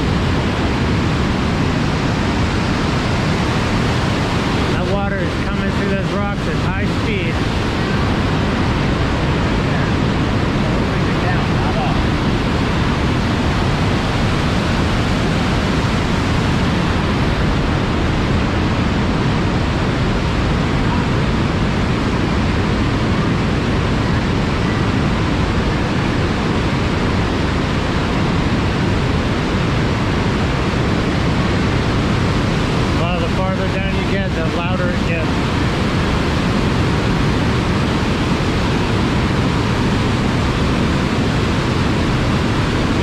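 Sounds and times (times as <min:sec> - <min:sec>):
waterfall roaring in gorge: 0:00.0 - 0:43.0.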